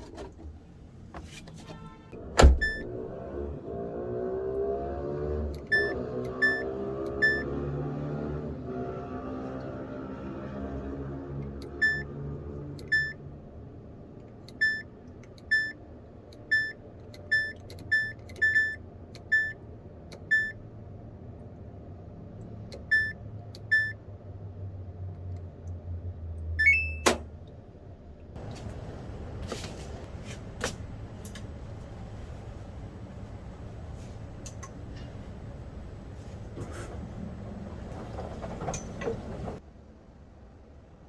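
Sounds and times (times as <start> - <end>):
appliance electronic beeps: 5.7 - 7.5, 16.5 - 19.6, 26.6 - 27.2.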